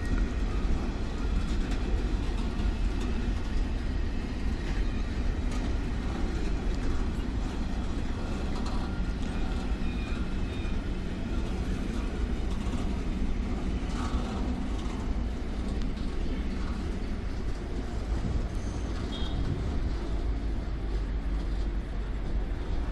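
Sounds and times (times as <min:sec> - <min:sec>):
train rumbling past: 0:00.0 - 0:22.9.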